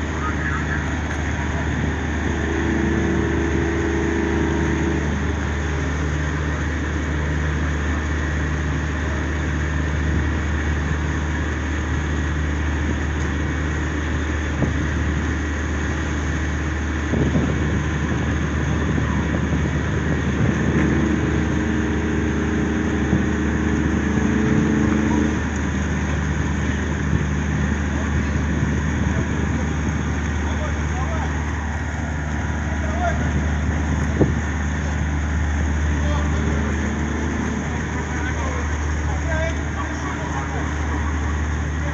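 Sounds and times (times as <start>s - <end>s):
engines droning: 0.0s - 41.9s
second engine tones: 0.0s - 41.9s.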